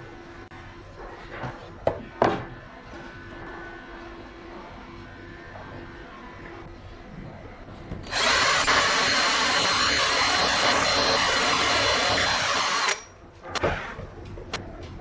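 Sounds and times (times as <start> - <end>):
power wood planer running: 8.1 - 13.0.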